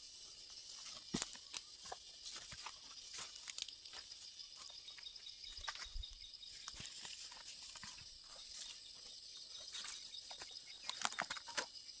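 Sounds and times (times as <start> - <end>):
small clicks and rustles: 0.6 - 8.8, 9.6 - 11.9.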